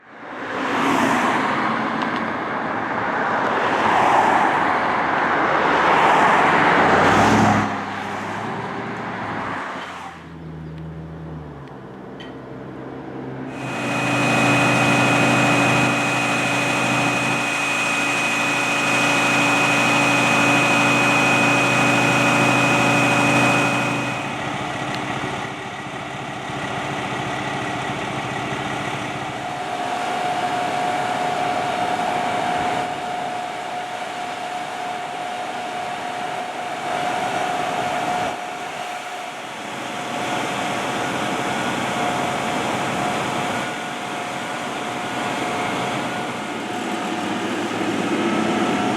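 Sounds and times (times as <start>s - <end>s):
engine running with high whine: 0.0s - 48.9s
loud tones: 13.5s - 25.6s, 29.0s - 48.9s.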